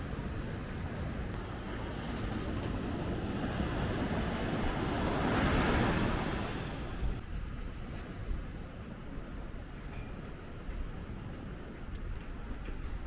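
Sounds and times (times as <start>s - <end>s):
wind-like background noise: 0.0s - 13.0s
tyres hissing on wet road: 1.4s - 7.1s.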